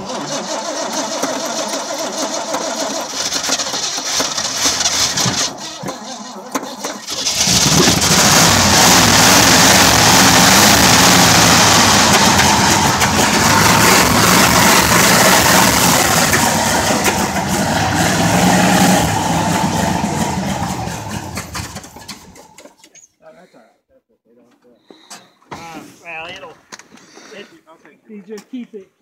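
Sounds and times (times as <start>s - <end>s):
engine running at raised revs: 7.1s - 22.4s.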